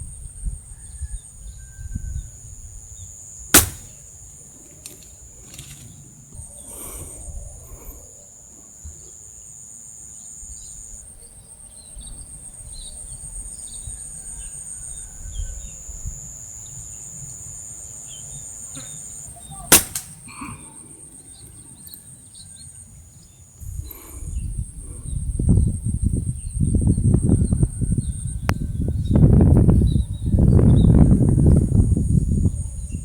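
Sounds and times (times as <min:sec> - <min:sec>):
air rifle shot: 0:03.6 - 0:04.0, 0:19.7 - 0:20.2.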